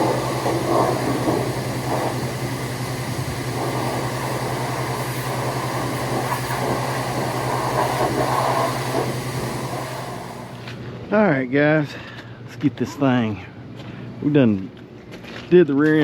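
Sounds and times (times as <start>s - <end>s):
engine running steadily: 0.0s - 11.1s.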